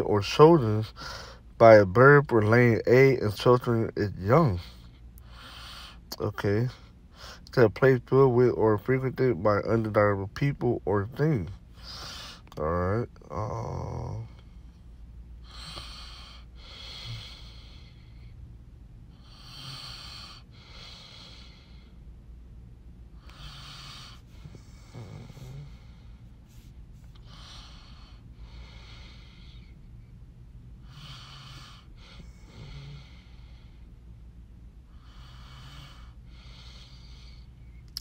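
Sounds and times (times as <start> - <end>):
person breathing close to microphone: 0.9 - 1.6, 4.5 - 6.1, 11.6 - 12.5, 15.4 - 18.4, 23.2 - 30.0, 30.8 - 34.0.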